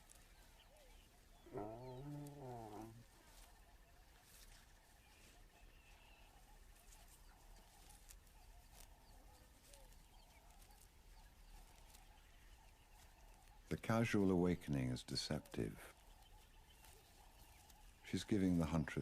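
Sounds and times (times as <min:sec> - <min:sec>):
faint night ambience: 0:00.0 - 0:19.0
soft repeating call: 0:01.5 - 0:03.0.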